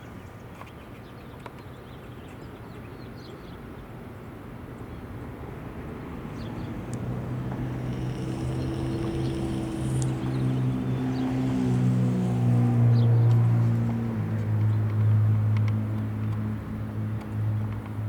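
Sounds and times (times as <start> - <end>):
motor vehicle engine: 5.6 - 17.8.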